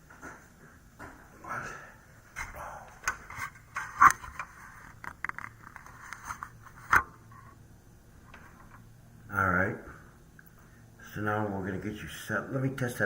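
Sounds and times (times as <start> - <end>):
handling clicks and scrapes: 3.1 - 7.6.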